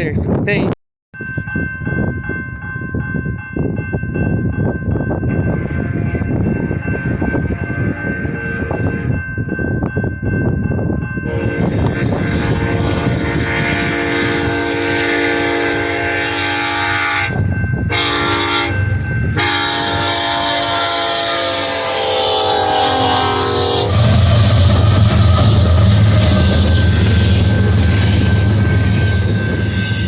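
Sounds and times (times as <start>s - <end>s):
freight train rumbling past: 1.5s - 30.0s
locomotive air horn: 11.3s - 18.8s, 19.4s - 29.4s.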